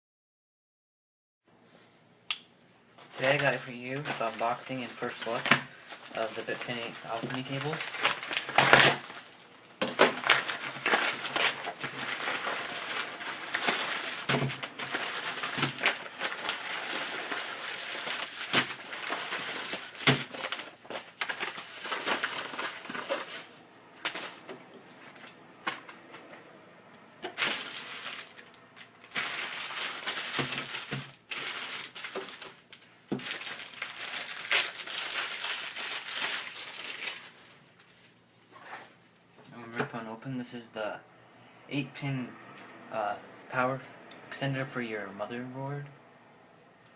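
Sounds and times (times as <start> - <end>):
packaging crinkling and rustling: 3.0 - 26.4, 27.2 - 39.0.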